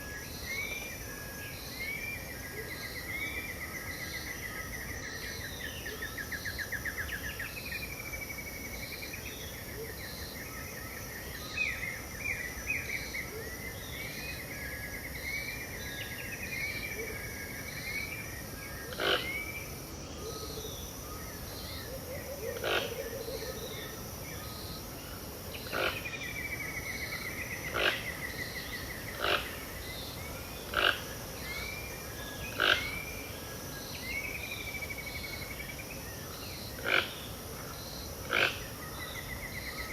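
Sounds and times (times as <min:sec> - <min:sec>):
sharp loud bird calls: 0:27.2 - 0:29.8, 0:30.7 - 0:31.1, 0:32.5 - 0:33.0, 0:38.2 - 0:38.7.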